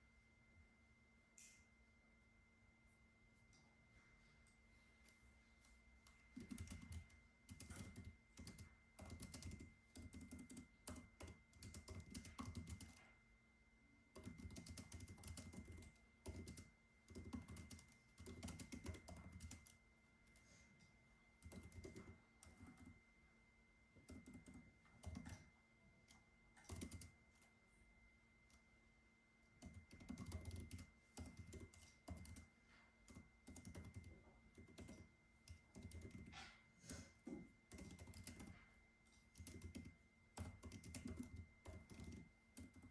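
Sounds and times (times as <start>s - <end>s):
faint high-pitched hum: 0.0s - 42.9s
typing on computer keyboard: 6.0s - 13.1s, 14.1s - 20.4s, 21.4s - 23.0s, 24.0s - 27.5s, 29.6s - 37.1s, 37.7s - 38.6s, 39.3s - 42.9s.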